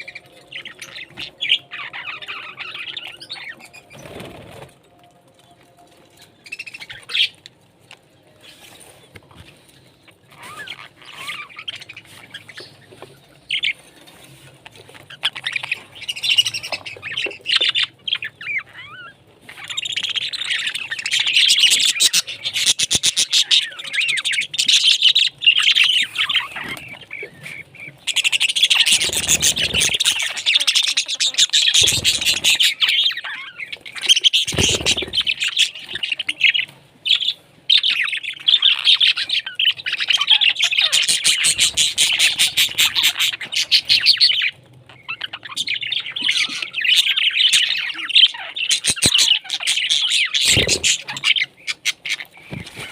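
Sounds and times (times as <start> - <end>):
parrots chirping and chattering: 0.0 - 52.9
parrot squawks: 28.1 - 44.5.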